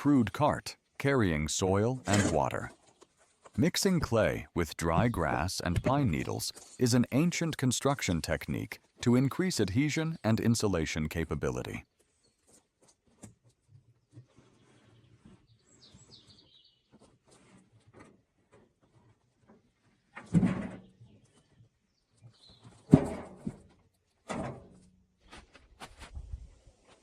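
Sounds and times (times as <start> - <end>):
bird chirping: 14.0 - 17.0.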